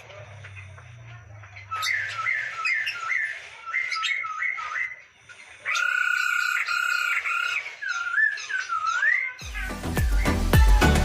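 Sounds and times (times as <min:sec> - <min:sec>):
bird singing whistled phrases: 0:01.7 - 0:05.1, 0:05.7 - 0:10.9.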